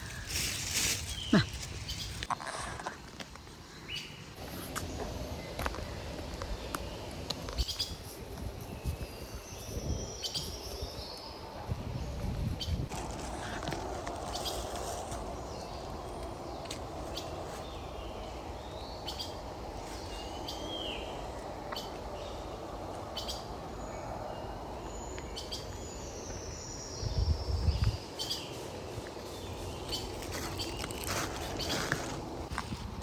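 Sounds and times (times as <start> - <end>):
forest birds chirping: 0.0 - 33.0.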